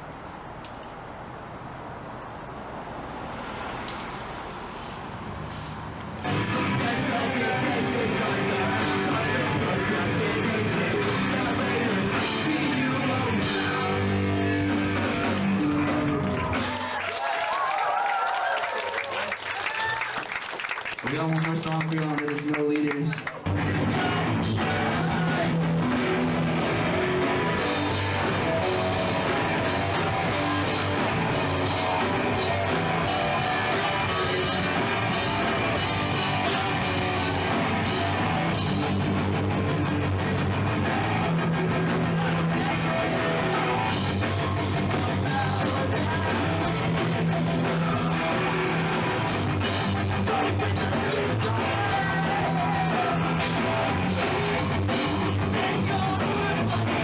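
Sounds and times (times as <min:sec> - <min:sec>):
person singing: 0:06.2 - 0:16.9, 0:23.6 - 0:38.9, 0:41.5 - 0:57.0
guitar: 0:06.2 - 0:17.0, 0:23.2 - 0:57.0
rock band playing live: 0:06.2 - 0:17.0, 0:23.4 - 0:57.0.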